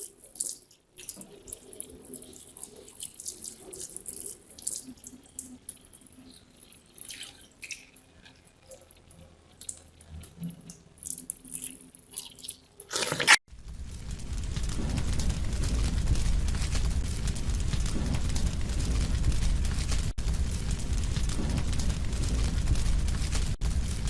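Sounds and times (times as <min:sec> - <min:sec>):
water dripping: 0:00.0 - 0:12.9
steady rushing noise: 0:13.6 - 0:24.0.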